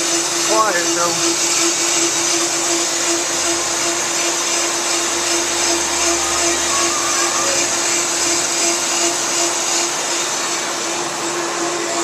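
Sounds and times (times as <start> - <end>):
brake lathe humming and hissing: 0.0 - 12.0.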